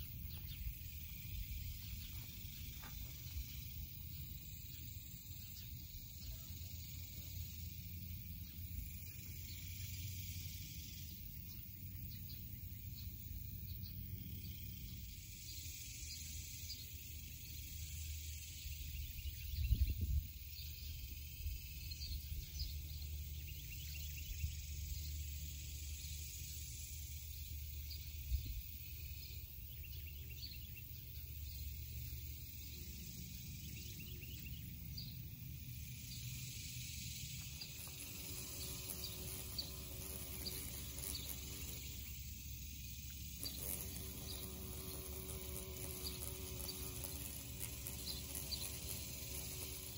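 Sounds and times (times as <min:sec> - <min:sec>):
insects chirping and ticking: 0:00.0 - 0:49.9
birds chirping: 0:37.4 - 0:42.2, 0:43.3 - 0:49.9.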